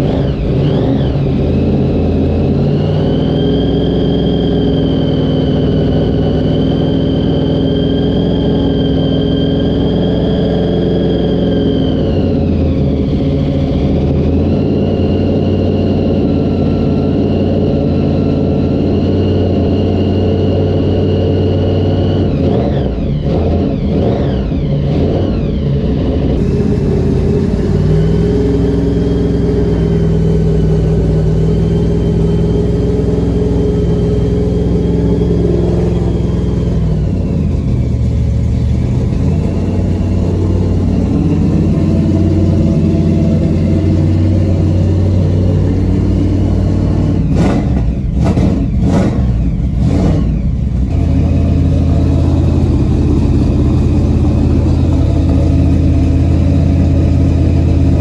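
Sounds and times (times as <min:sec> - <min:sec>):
vcar engine fast idle: 0:26.4 - 0:45.8.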